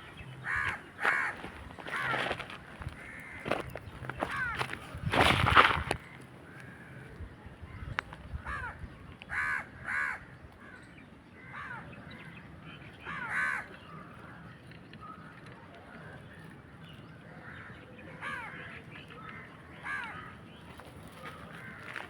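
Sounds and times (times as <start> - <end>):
crows cawing: 0.4 - 4.8, 8.4 - 10.8, 11.4 - 11.9, 13.0 - 13.8, 17.4 - 20.4, 21.1 - 22.0.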